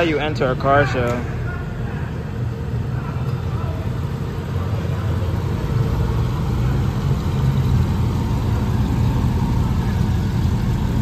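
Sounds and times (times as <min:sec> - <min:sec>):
car engine running low: 0:01.2 - 0:11.0.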